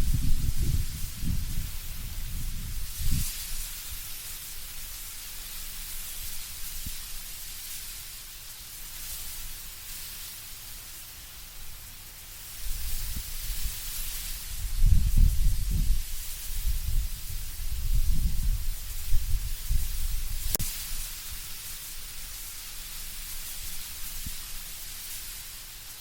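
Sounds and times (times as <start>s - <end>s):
low wind gusts rumbling: 0.0s - 3.2s, 14.5s - 20.6s
leaves rustling in wind: 0.0s - 26.0s.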